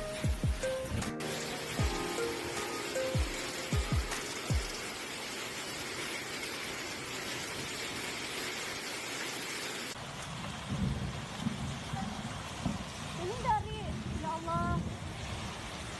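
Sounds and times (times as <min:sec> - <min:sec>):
heavy rain pouring: 0:00.0 - 0:15.9
strong wind: 0:10.7 - 0:15.9.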